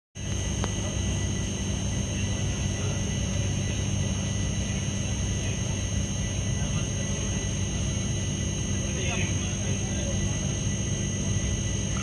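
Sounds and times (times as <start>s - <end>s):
high-pitched whine: 0.2s - 12.0s.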